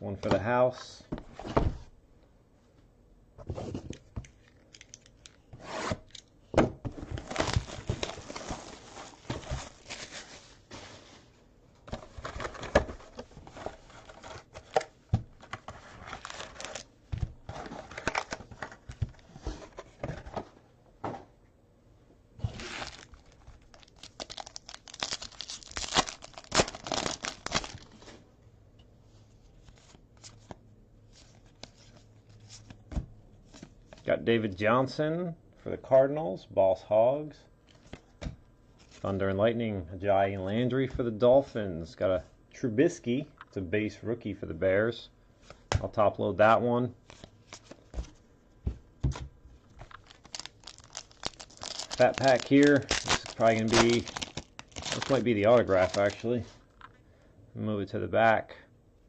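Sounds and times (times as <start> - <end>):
wrapper tearing and crinkling: 7.2 - 10.4, 16.0 - 16.9, 22.5 - 28.0, 49.9 - 56.4.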